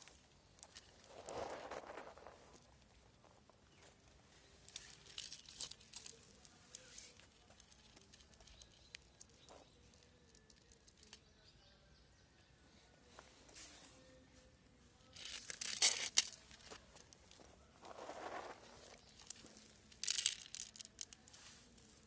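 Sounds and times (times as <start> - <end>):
faint scattered clicks: 4.6 - 11.3, 18.3 - 22.0.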